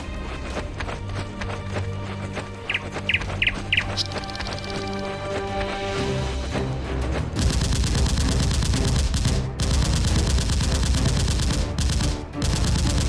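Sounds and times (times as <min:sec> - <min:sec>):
rapid automatic gunfire: 0:07.4 - 0:13.0.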